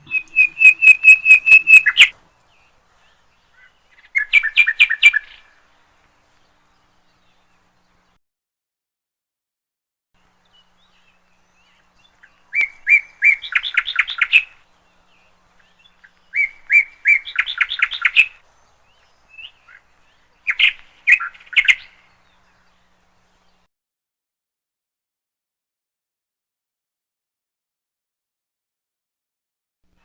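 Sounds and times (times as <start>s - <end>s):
songbird chirping: 0.0s - 3.3s.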